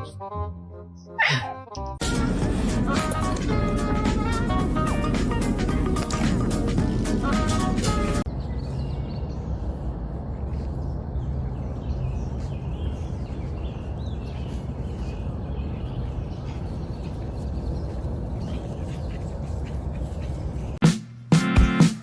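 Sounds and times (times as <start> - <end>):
low background rumble: 2.0 - 20.8.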